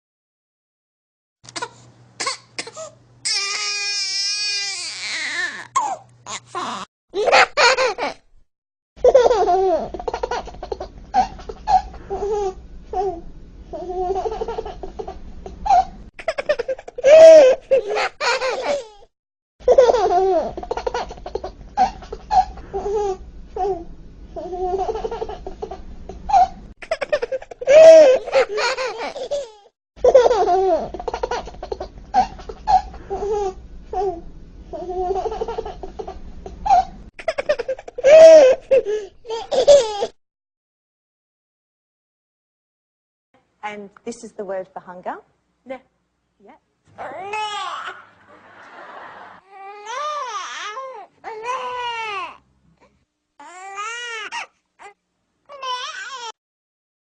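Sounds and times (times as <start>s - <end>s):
baby crying: 1.6s - 6.9s, 17.0s - 19.0s, 27.6s - 29.7s, 38.0s - 40.1s, 47.0s - 48.2s, 49.4s - 52.4s, 53.4s - 56.4s
baby laughing: 5.0s - 8.3s, 9.0s - 13.1s, 13.8s - 19.0s, 19.7s - 23.7s, 24.4s - 34.1s, 34.8s - 40.2s, 47.0s - 52.2s.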